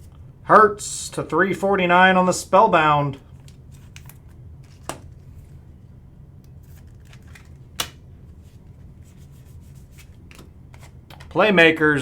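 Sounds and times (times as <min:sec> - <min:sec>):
steady low hum: 0:00.0 - 0:12.0
trading cards clicking and rustling: 0:03.3 - 0:05.5, 0:06.4 - 0:11.5.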